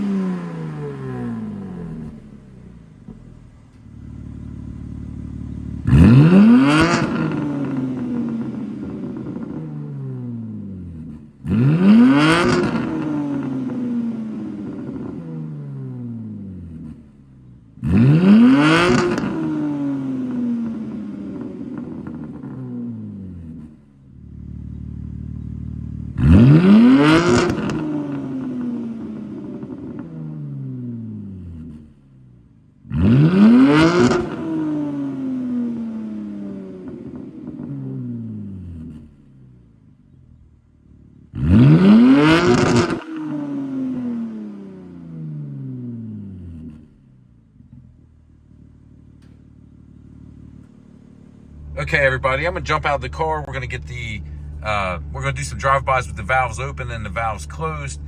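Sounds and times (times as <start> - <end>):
car exhaust revving: 0.0 - 17.2, 17.8 - 32.0, 32.8 - 58.0.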